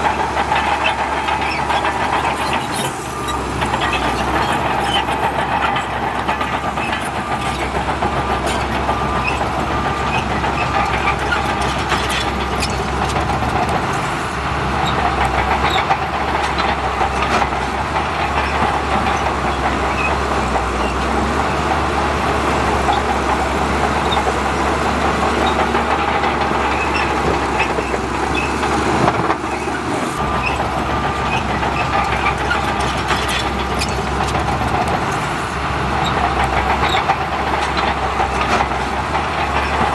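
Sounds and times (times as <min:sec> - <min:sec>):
bulldozer diesel engine running: 0:00.0 - 0:39.9
steel crawler tracks clattering: 0:00.0 - 0:39.9.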